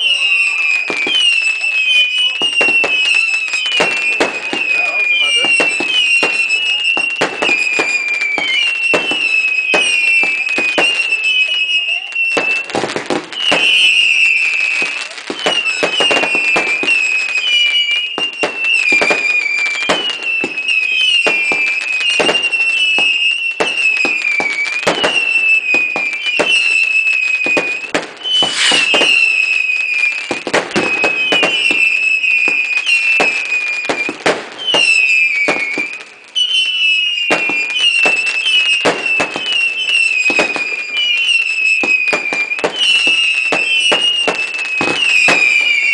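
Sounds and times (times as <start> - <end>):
firework bangs: 0.0 - 45.9
firework crackle: 0.0 - 45.9
whistling fireworks: 0.0 - 45.9.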